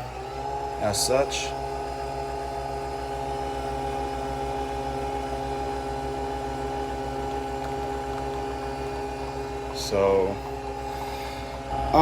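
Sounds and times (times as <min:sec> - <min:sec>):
coffee machine whirring hum: 0:00.0 - 0:12.0.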